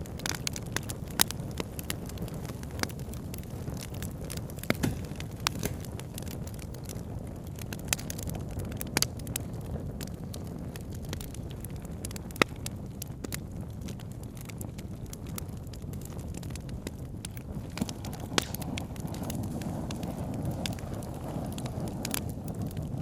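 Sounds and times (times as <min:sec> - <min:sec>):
burning wood popping: 0:00.0 - 0:23.0
campfire crackling: 0:00.0 - 0:23.0.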